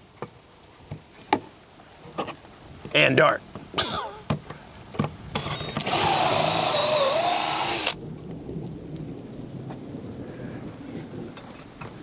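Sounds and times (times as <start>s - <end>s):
power drill boring into wood: 5.4s - 8.0s.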